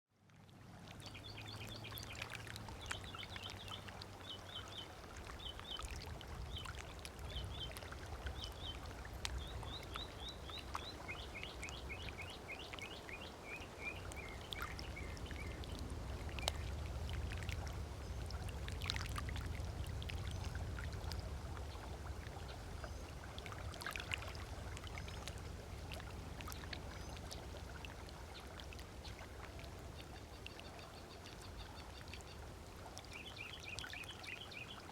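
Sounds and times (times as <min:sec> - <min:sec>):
water lapping on beach: 0:00.2 - 0:34.9
low steady rumble: 0:00.3 - 0:33.1.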